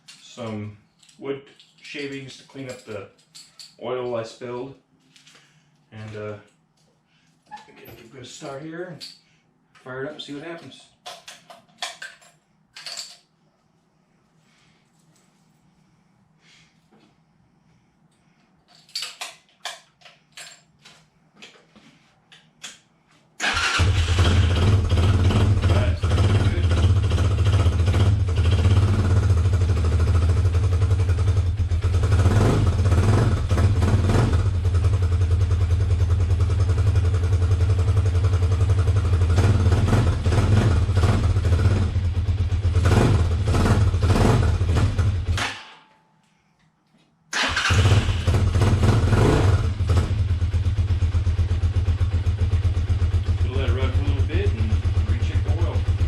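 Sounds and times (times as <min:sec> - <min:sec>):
motorcycle engine idling: 0:50.1 - 0:56.0.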